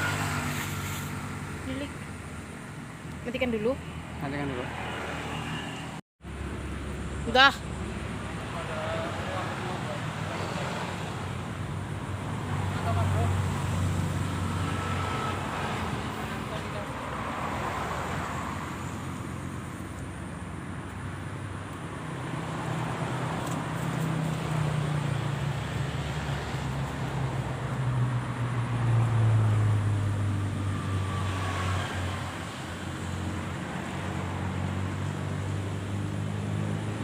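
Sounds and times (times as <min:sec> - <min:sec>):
vehicle engine passing by: 0:00.0 - 0:02.3, 0:03.2 - 0:20.0
traffic noise: 0:00.0 - 0:37.0.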